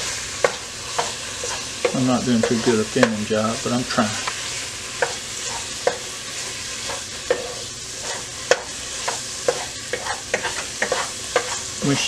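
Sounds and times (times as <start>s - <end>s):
meat sizzling in hot oil: 0.0s - 12.0s
spoon knocking on pot: 8.5s - 8.7s.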